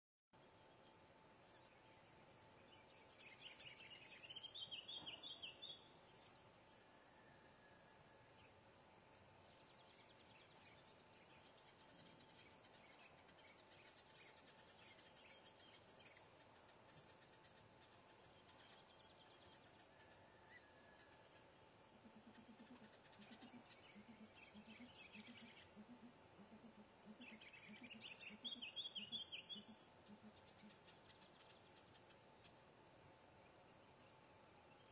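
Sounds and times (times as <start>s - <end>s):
small birds chirping and trilling: 0.4s - 34.9s.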